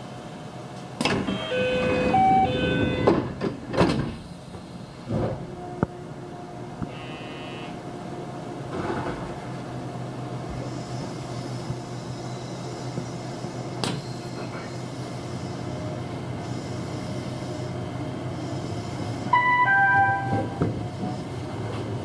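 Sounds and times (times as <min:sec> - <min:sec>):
electric train running hum: 0:00.0 - 0:22.0
three-note electronic chime: 0:19.4 - 0:20.6.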